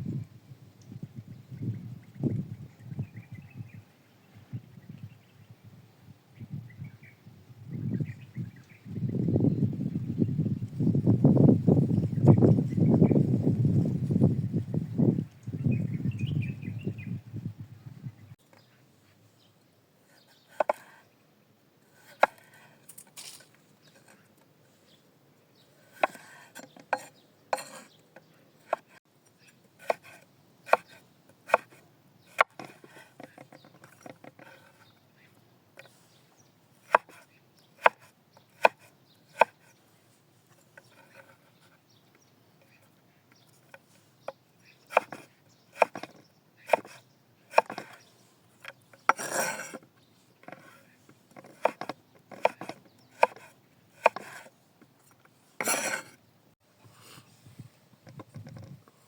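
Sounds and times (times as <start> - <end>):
scraping rustle: 22.1 - 24.9, 54.1 - 56.2.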